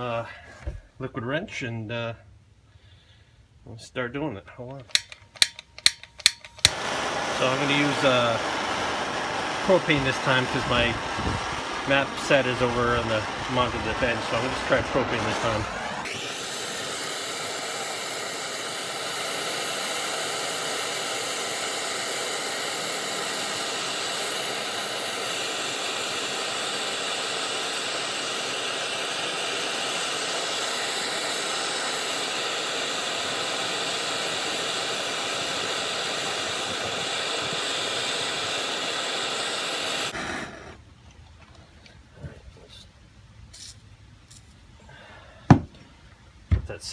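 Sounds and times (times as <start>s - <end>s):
propane torch hissing: 4.9s - 40.9s.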